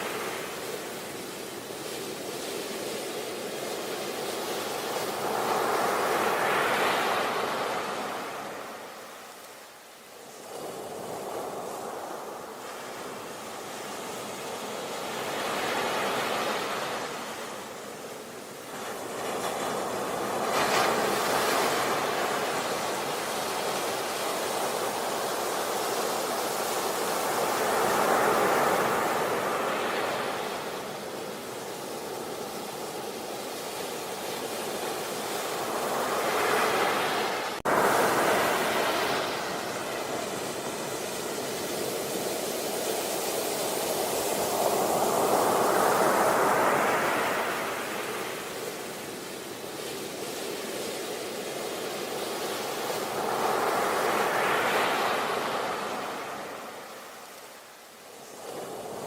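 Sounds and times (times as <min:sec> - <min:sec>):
sea waves breaking on a beach: 0:00.0 - 0:59.0.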